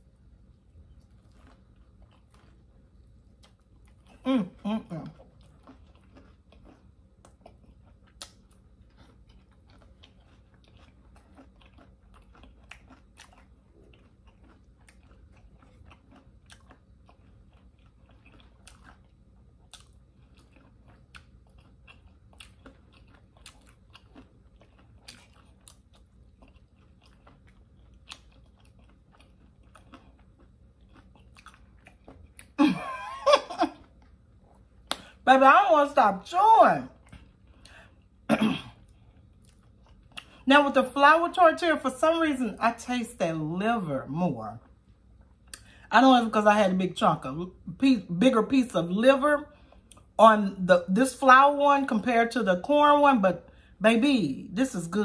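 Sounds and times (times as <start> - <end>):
person chewing: 0.0 - 35.2, 36.9 - 40.5, 44.6 - 45.9, 49.5 - 50.2.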